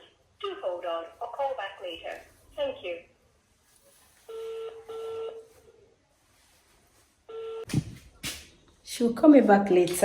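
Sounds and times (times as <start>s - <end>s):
telephone ringback tone: 4.3s - 5.7s, 7.3s - 7.7s.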